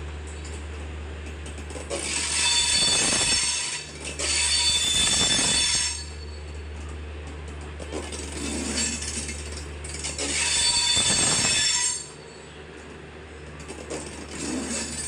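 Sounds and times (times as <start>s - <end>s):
steady low hum: 0.0s - 15.0s
train wheels clanking on rails: 0.4s - 12.2s, 12.8s - 15.0s
high-pitched metallic squeal: 1.9s - 6.4s, 8.1s - 12.6s, 14.3s - 15.0s.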